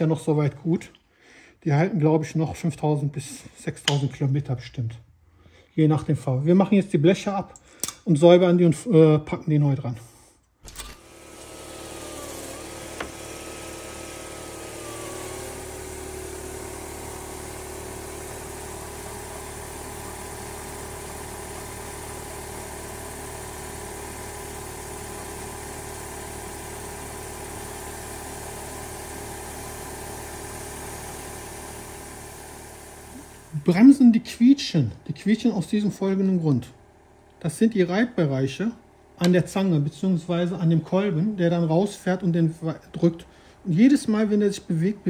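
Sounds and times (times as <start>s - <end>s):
motor hum: 10.6s - 34.0s.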